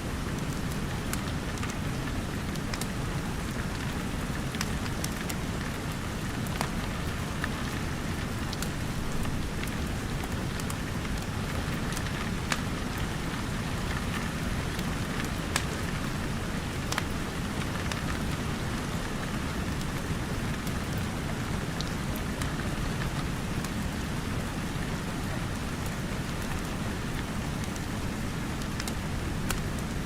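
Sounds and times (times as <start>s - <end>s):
rain on a roof and windows: 0.0s - 30.0s
wood fire crackling and popping: 4.5s - 6.7s, 8.5s - 15.9s, 16.7s - 18.0s, 28.6s - 29.9s.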